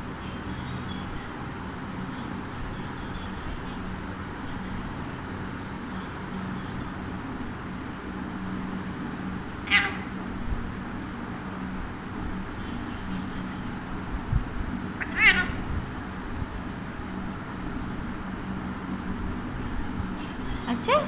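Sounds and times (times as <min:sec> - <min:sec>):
steady low hum: 0:00.0 - 0:21.0
parakeet short harsh call: 0:09.7 - 0:10.1, 0:15.0 - 0:15.6.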